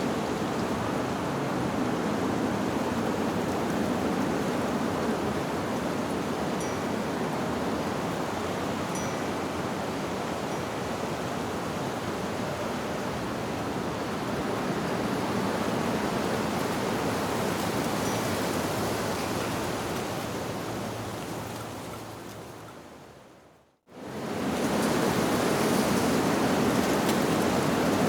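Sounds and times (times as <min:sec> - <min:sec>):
wind through leaves: 0:00.0 - 0:28.0.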